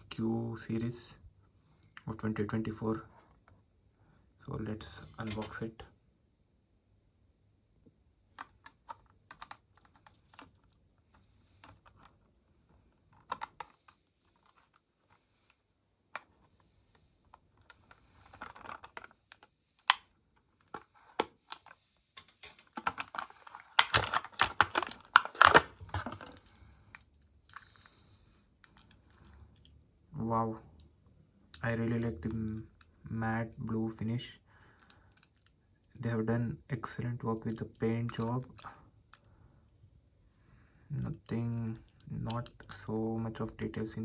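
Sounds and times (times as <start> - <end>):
plastic packaging crinkling: 20.6 - 26.6.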